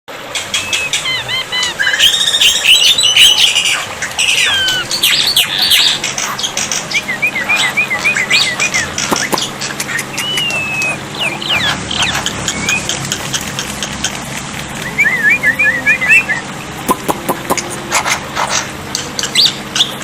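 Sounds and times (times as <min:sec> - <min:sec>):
myna singing whistles and squawks: 0:00.4 - 0:13.0, 0:14.8 - 0:17.6.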